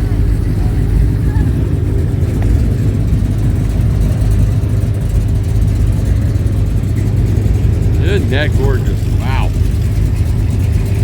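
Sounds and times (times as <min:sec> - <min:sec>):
vehicle engines rumbling: 0:00.0 - 0:11.0.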